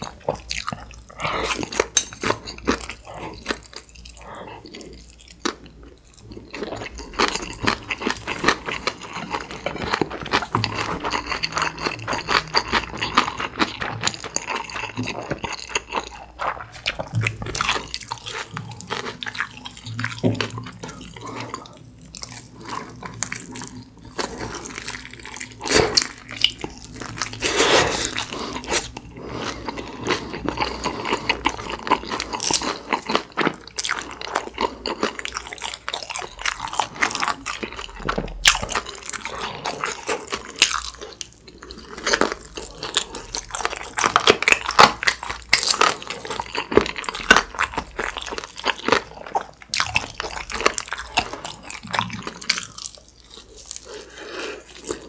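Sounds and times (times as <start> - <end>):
crunchy chewing of fried chicken: 0.0 - 55.0.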